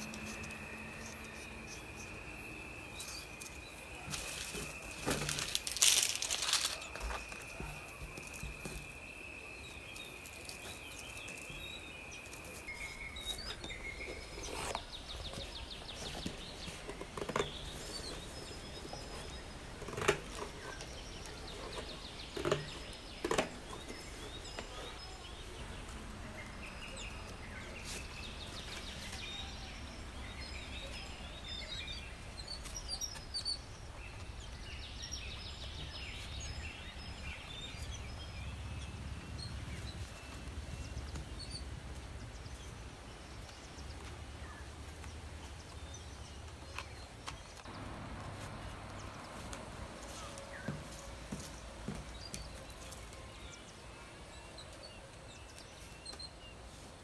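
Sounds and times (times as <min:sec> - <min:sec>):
birds chirping in trills: 0:00.0 - 0:57.0.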